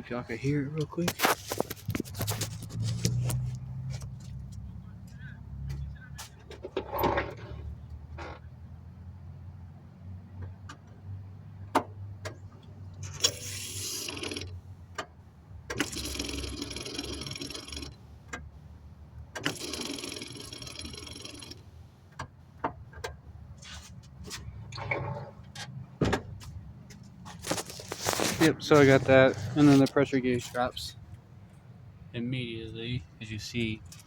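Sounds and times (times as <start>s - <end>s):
fuel pump priming rush: 13.0s - 14.6s, 15.7s - 18.4s, 19.3s - 21.6s.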